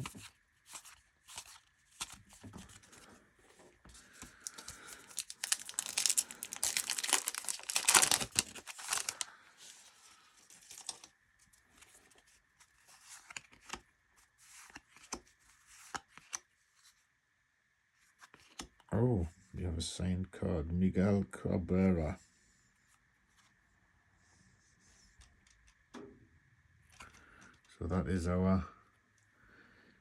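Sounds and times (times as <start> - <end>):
cards clicking and rustling: 0.0 - 11.1, 11.7 - 13.8, 14.4 - 16.5, 18.2 - 18.9
wrapper crinkling and tearing: 4.2 - 9.4, 10.5 - 11.1.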